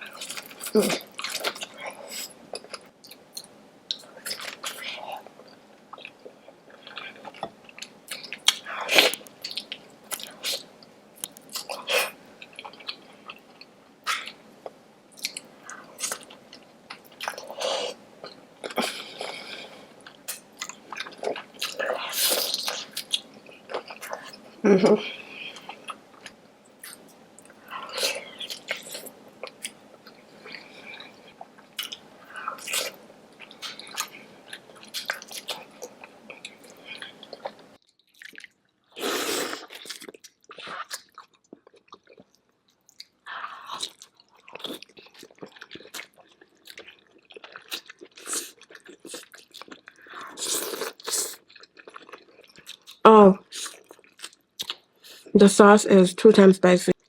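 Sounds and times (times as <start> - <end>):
faint steady hiss: 0.0 - 37.8.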